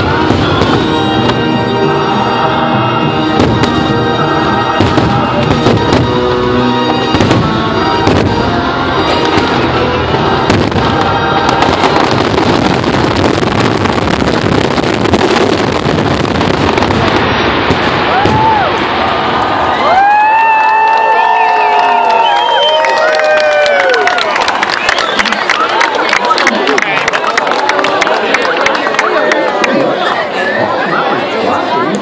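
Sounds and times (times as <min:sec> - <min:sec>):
music soundtrack: 0:00.0 - 0:20.1
fireworks bangs and crackling: 0:00.0 - 0:21.3.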